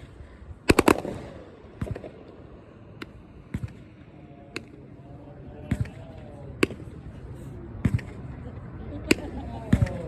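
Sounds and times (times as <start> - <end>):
fireworks bangs and cracks: 0.7 - 4.0.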